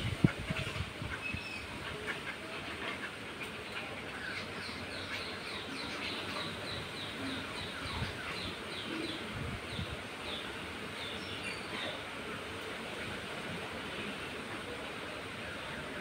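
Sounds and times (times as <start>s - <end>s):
birds chirping: 0.5s - 12.2s.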